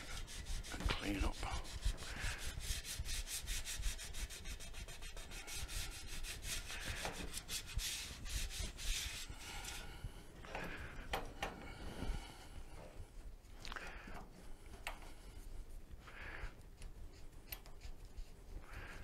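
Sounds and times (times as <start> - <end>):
scrubbing a scooter panel: 0.0 - 9.9.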